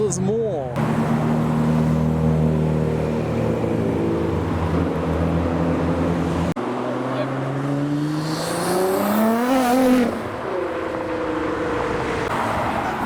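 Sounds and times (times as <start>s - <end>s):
engine revving up: 0.8s - 10.4s.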